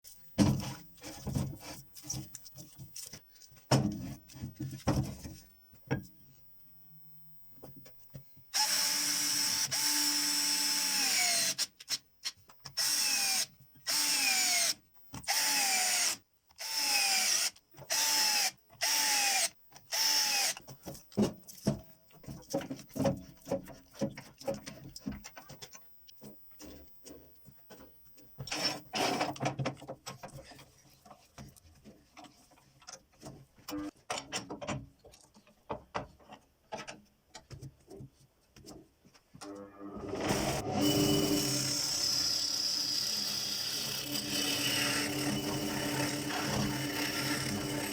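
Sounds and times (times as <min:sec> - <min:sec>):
electric power tool motor: 0:40.2 - 0:47.9.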